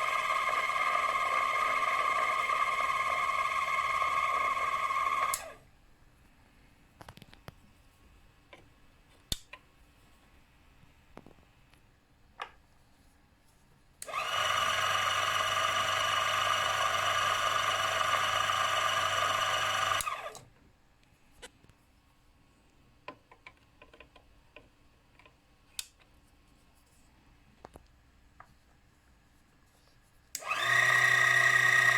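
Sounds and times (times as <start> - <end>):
small electric motor whirring: 0.0 - 5.6, 14.0 - 20.4, 30.4 - 31.9.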